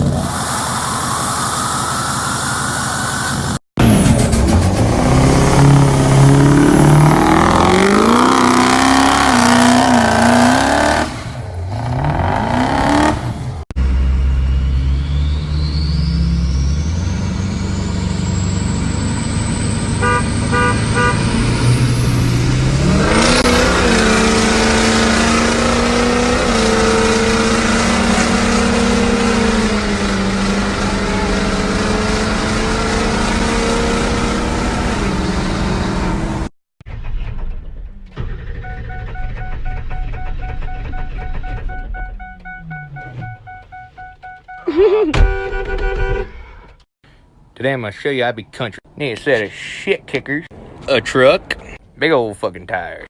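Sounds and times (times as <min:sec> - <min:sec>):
diesel truck engine revving: 0:00.0 - 0:36.5.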